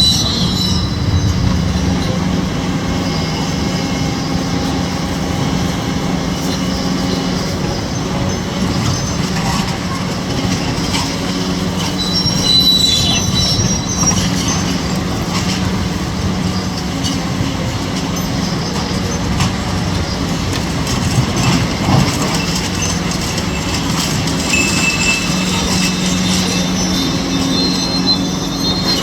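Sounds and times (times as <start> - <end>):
excavator diesel engine under load: 0.0 - 29.0
high metallic squeals: 0.0 - 29.0.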